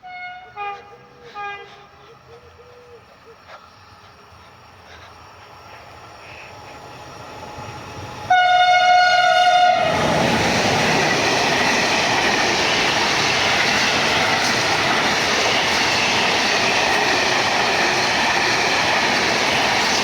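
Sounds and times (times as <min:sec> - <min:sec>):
train horn: 0:00.0 - 0:02.2, 0:08.3 - 0:10.4
train wheels rushing past: 0:03.6 - 0:20.0.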